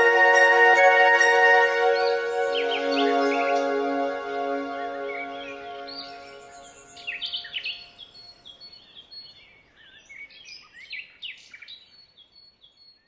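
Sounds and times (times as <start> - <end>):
music track: 0.0 - 8.0
small birds chirping: 1.1 - 13.0.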